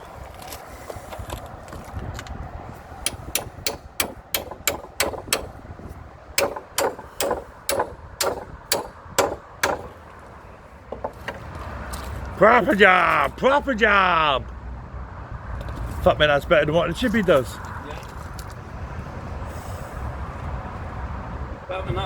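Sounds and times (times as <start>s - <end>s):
hammer striking wooden gate: 3.1s - 5.6s, 6.4s - 10.1s, 10.9s - 11.5s.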